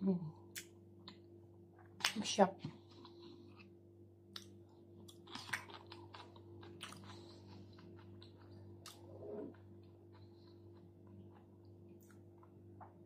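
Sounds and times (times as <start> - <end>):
low electrical hum: 0.0 - 13.0
wet chewing clicks and crunches: 4.3 - 12.6.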